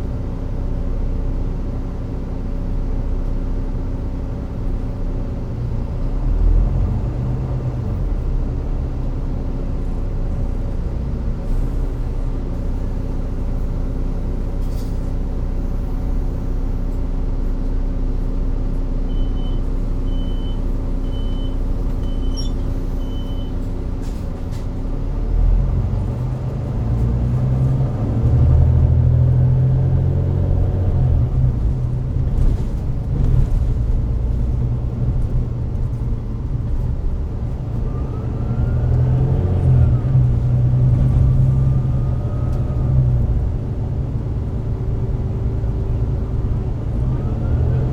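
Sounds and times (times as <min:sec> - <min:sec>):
bus diesel engine: 0:00.0 - 0:47.9
short high beeps: 0:19.1 - 0:23.5.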